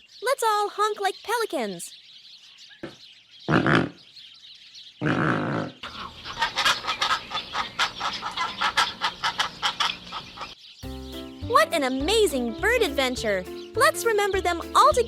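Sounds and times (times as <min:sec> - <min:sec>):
pelican calls: 0:05.8 - 0:10.5.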